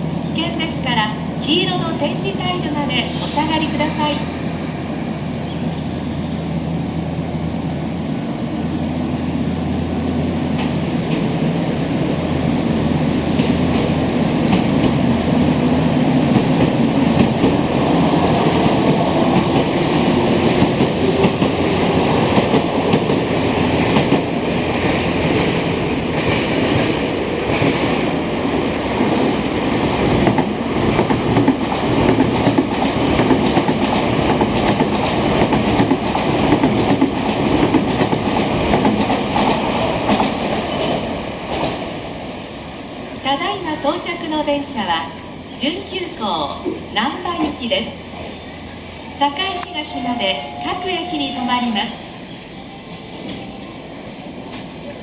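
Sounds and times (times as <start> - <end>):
wheels clacking on rails: 13.3 - 28.0, 29.0 - 42.0.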